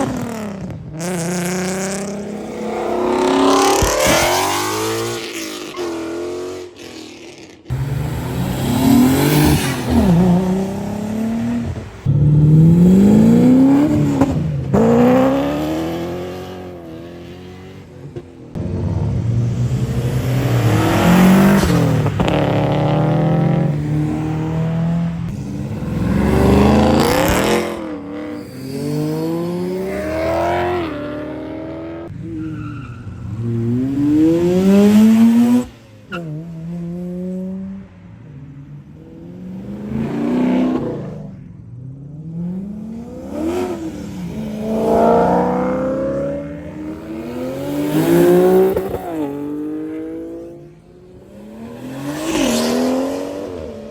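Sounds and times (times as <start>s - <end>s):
car engines accelerating hard: 0.0s - 53.9s.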